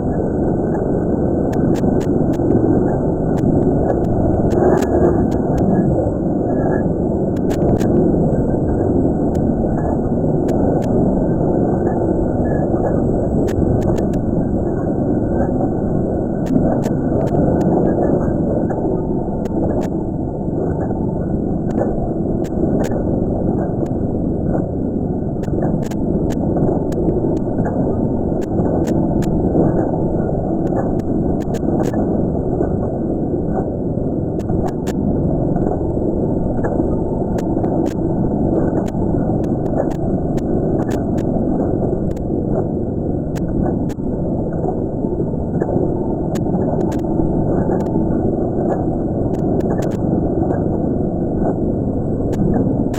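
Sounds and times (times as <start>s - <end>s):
sharp clicks: 49.3s - 50.0s.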